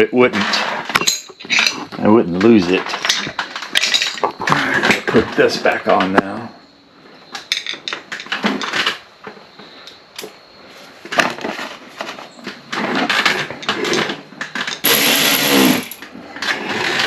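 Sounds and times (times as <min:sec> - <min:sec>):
parts and tools rattling: 0:00.4 - 0:06.2, 0:07.3 - 0:09.4, 0:11.0 - 0:17.0.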